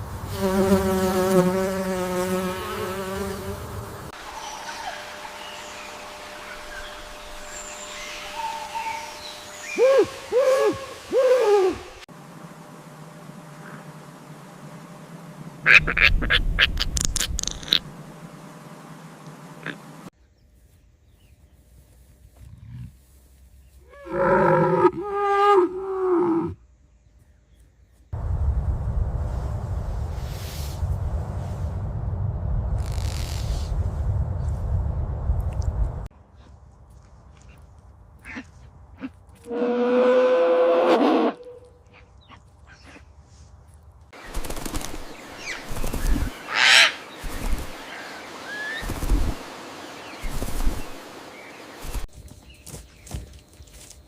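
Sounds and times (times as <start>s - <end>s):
animal's long drawn-out call: 9.7s - 12.0s, 38.2s - 41.7s, 46.5s - 47.0s
harsh bird call: 45.4s - 49.1s.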